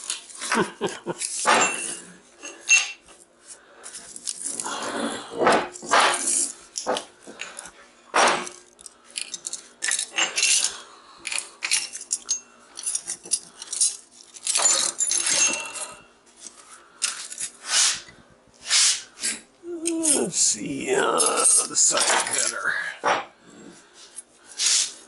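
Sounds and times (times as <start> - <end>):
metallic clinks and knocks: 1.2 - 3.2, 8.2 - 16.1.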